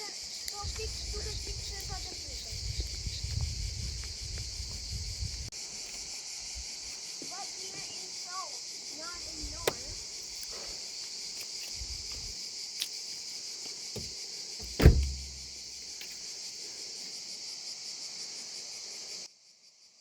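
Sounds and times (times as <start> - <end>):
cicadas singing: 0.0 - 20.0
loud thump: 14.0 - 15.5.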